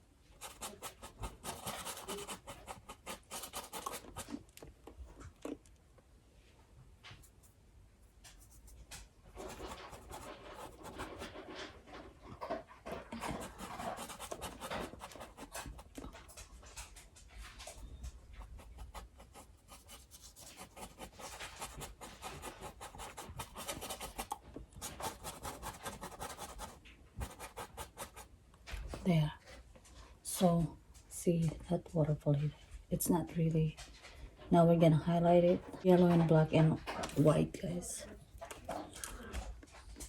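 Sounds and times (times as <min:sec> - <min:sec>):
paintbrush scrubbing on canvas: 0:00.4 - 0:04.4, 0:09.4 - 0:11.5, 0:13.1 - 0:16.3, 0:17.8 - 0:28.3.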